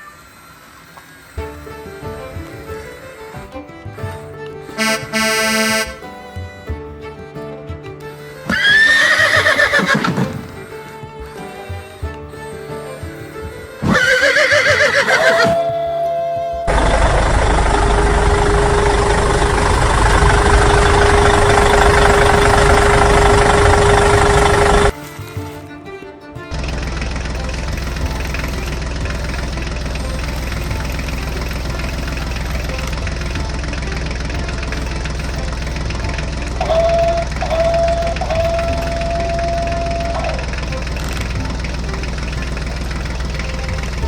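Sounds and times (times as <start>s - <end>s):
steady high tone: 15.0s - 25.0s, 26.5s - 44.0s
heavy machine engine knocking rumble: 16.6s - 25.0s, 26.5s - 44.0s.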